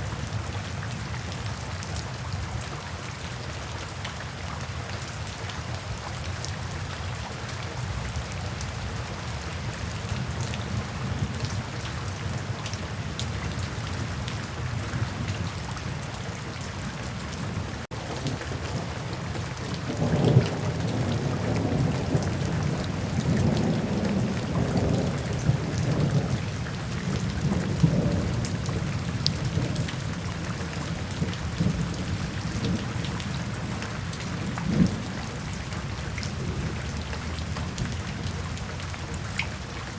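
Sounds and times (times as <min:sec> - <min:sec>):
steady rain falling: 0:00.0 - 0:39.9
thunder rumbling: 0:18.0 - 0:35.7.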